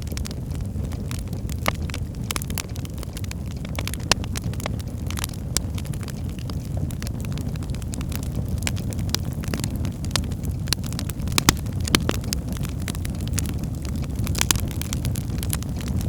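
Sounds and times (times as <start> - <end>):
fire crackling and popping: 0.0 - 16.0
fire flames rumbling: 0.0 - 16.0.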